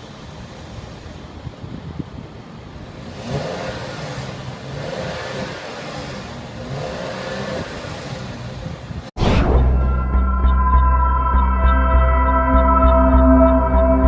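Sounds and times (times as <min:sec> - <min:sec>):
car engine revving: 0:03.0 - 0:12.1.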